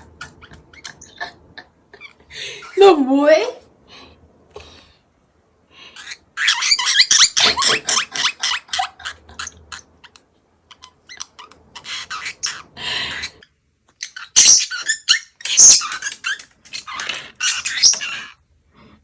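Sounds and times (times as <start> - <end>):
parrot chattering calls: 14.0 - 18.2.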